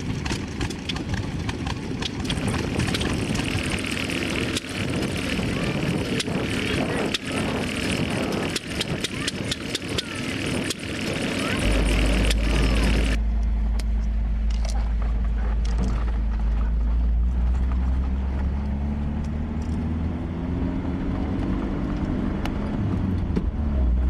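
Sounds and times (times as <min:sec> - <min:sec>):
engine running with deep note: 0:00.0 - 0:24.0.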